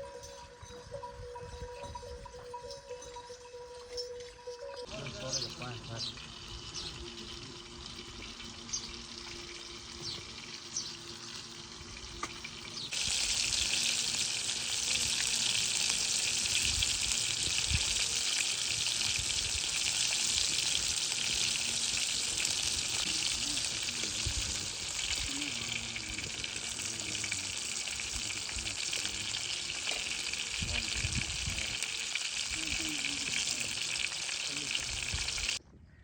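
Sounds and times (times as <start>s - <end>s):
food sizzling in hot oil: 4.6s - 35.6s.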